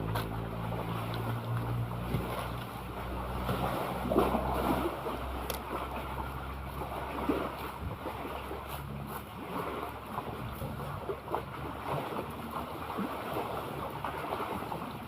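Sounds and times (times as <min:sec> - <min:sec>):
low steady hum: 0:00.0 - 0:15.0
sea water splashing and lapping: 0:00.0 - 0:15.0.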